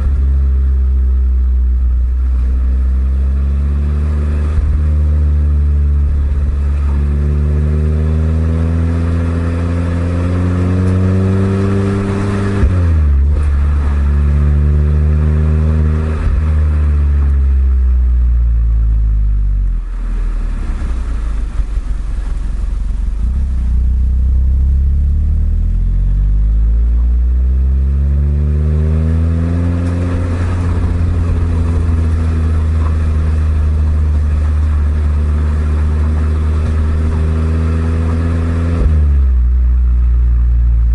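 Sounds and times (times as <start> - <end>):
car exhaust under acceleration: 0.0 - 40.9.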